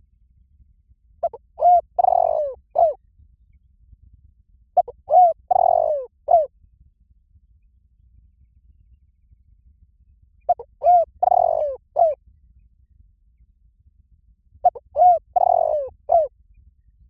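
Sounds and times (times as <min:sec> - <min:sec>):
dove cooing: 0:01.2 - 0:03.0, 0:04.8 - 0:06.5, 0:10.5 - 0:12.2, 0:14.6 - 0:16.3.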